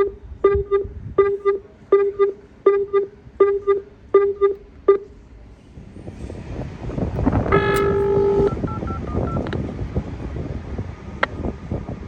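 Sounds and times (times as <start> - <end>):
electronic warning double beeps: 0.0 - 5.1, 7.5 - 9.4.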